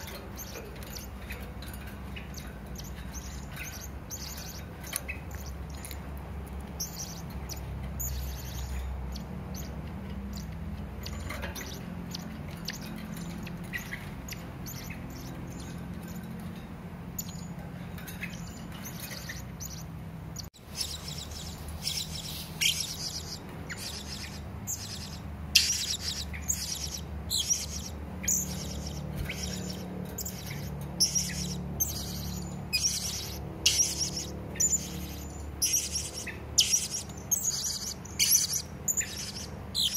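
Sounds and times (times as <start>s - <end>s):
steady low hum: 0.0s - 39.9s
parrot high chirps: 20.6s - 39.9s.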